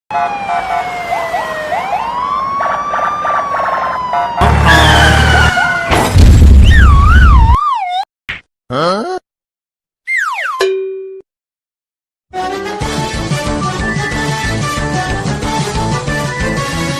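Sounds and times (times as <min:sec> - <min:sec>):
cartoon slide whistle: 0:04.6 - 0:05.8, 0:06.6 - 0:08.0, 0:10.1 - 0:10.6.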